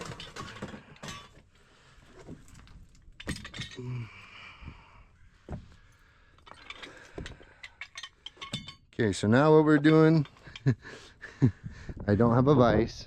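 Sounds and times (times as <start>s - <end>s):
metal tools clinking: 0.0s - 1.5s, 2.4s - 4.1s, 6.4s - 10.9s.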